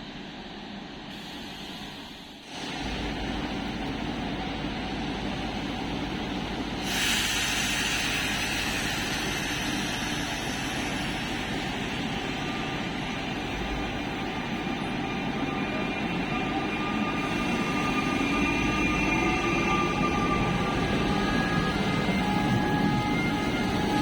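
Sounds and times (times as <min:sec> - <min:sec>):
train wheels rumbling: 0:02.8 - 0:24.0
train motor whine: 0:06.8 - 0:24.0.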